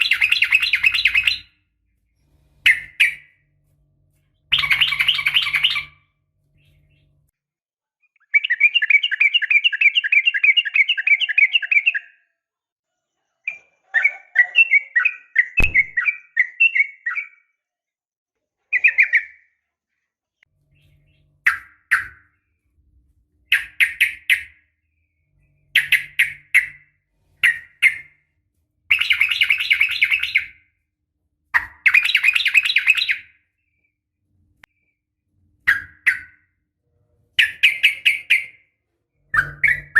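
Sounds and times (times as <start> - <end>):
sharp knock: 15.6 - 16.0.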